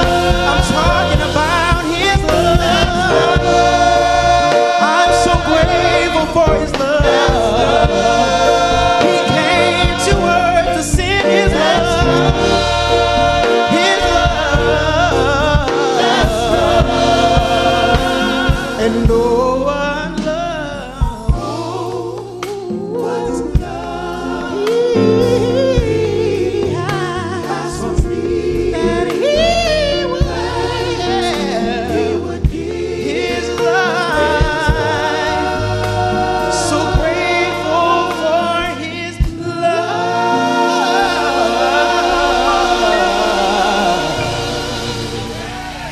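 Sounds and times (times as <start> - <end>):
drum hits: 0.0 - 20.4, 21.0 - 23.0, 40.4 - 45.9
vocal group singing in harmony: 0.0 - 45.9.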